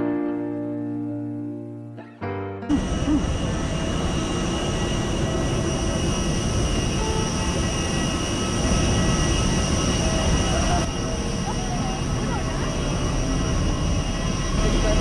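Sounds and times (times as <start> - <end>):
aircraft engines droning: 2.7 - 15.0.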